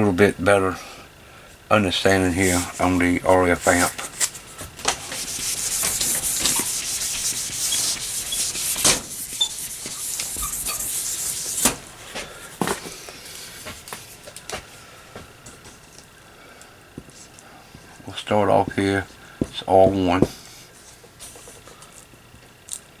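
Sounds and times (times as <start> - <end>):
marker rubbing on whiteboard: 2.3 - 11.8
marker tapping: 4.8 - 11.0.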